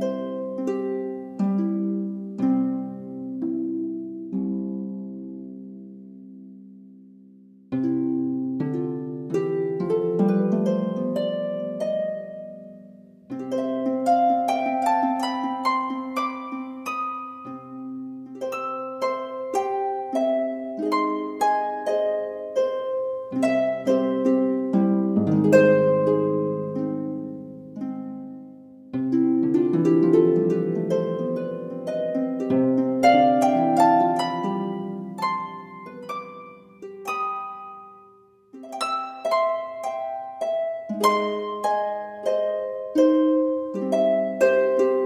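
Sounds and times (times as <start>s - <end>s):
plucked harp-like music: 0.0s - 45.0s.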